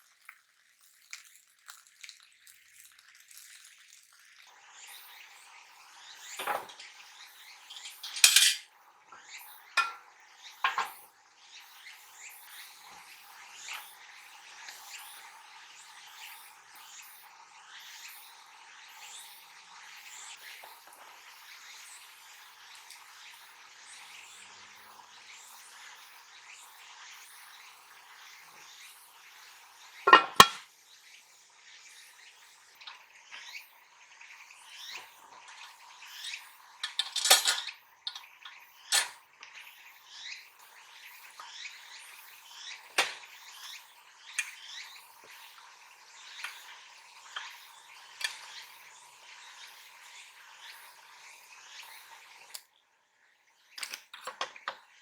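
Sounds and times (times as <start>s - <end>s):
metal cookware clinking: 6.4s - 6.9s, 7.7s - 8.7s, 9.8s - 10.1s, 10.7s - 11.0s, 30.1s - 30.6s, 36.8s - 38.3s, 39.0s - 39.2s
sharp metal clanks: 8.0s - 8.6s, 9.8s - 10.0s, 30.1s - 30.6s.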